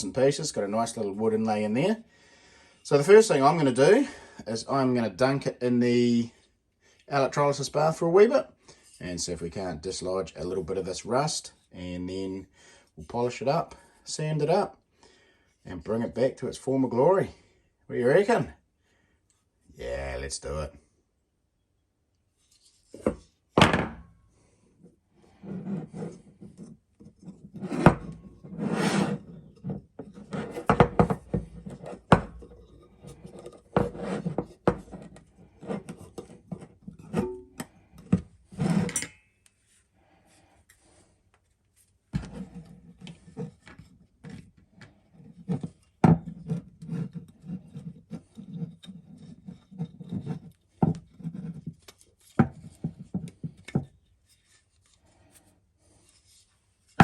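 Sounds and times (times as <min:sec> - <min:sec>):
handling rubbing and scraping: 0:22.3 - 0:23.5, 0:24.9 - 0:39.9, 0:40.7 - 0:57.0.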